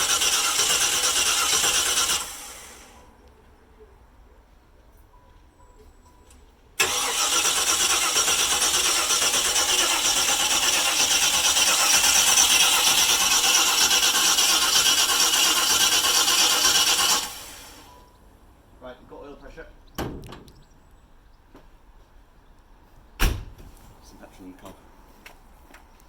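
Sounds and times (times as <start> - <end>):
car engine cranking and running: 0.0 - 3.1, 6.8 - 18.0.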